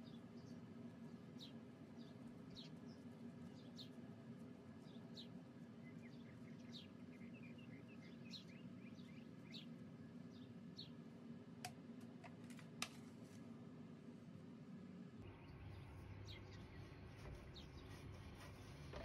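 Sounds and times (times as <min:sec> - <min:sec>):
low steady hum: 0:00.0 - 0:19.0
faint bird chirps: 0:04.8 - 0:11.0, 0:15.2 - 0:19.0.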